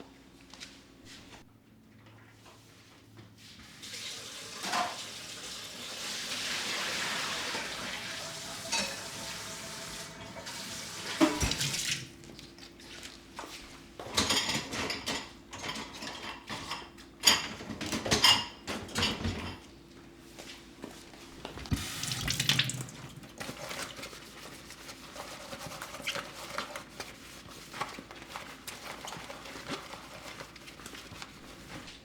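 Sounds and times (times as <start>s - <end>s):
tap water running into sink: 3.8s - 12.2s, 21.4s - 23.5s
dishes and cutlery clinking: 4.6s - 5.1s, 8.6s - 9.2s, 14.0s - 19.7s.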